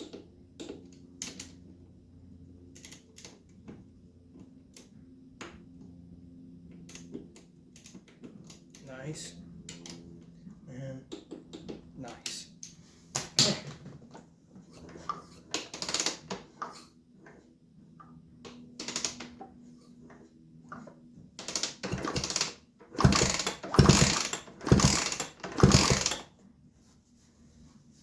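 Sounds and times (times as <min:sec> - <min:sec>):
hand tools clicking and clattering: 0:21.4 - 0:26.2.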